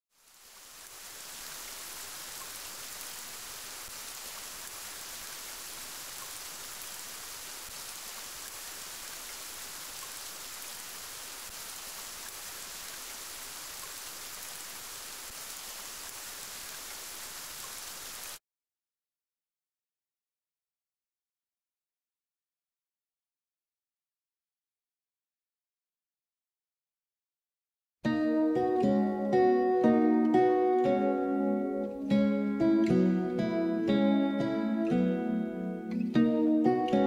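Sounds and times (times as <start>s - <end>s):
steady rain hiss: 0.1s - 18.4s.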